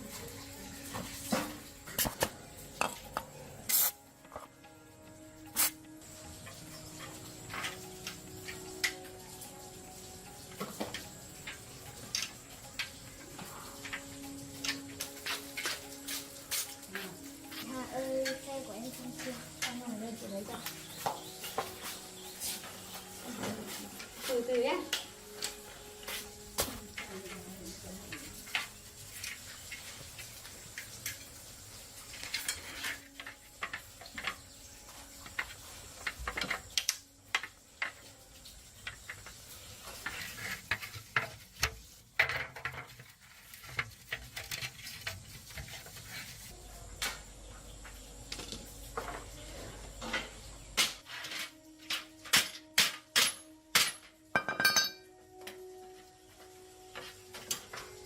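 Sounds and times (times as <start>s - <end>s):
metal objects clinking: 50.0s - 55.1s.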